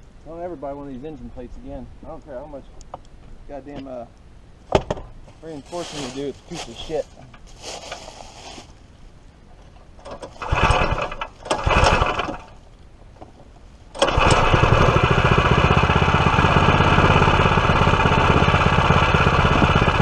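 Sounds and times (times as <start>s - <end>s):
engine pull-start cranking: 10.0s - 12.6s, 13.9s - 15.6s
small engine running steadily: 10.1s - 12.6s, 14.0s - 20.0s.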